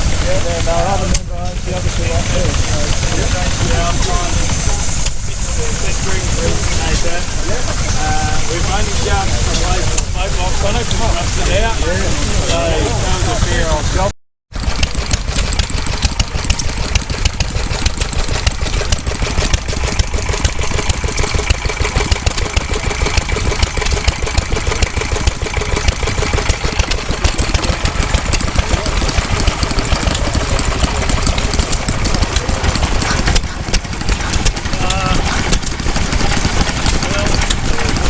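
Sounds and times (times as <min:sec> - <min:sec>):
stationary engine knocking: 0:00.0 - 0:38.0.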